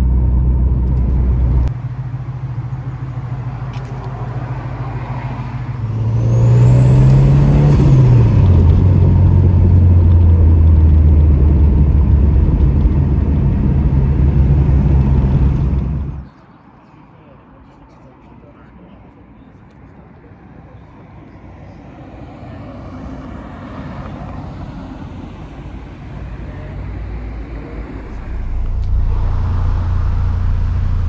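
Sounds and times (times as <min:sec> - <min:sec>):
car engine revving: 0:00.0 - 0:16.3, 0:24.4 - 0:31.0.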